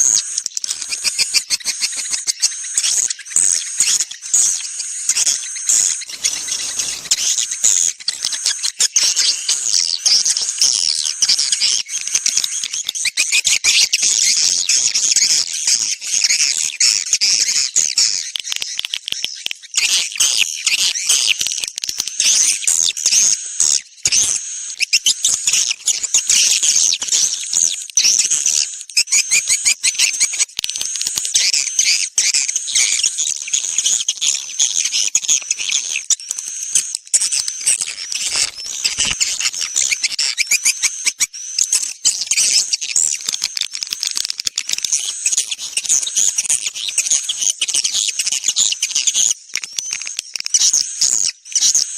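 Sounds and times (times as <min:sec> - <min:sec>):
swiftlets chirping: 0:00.6 - 0:09.8.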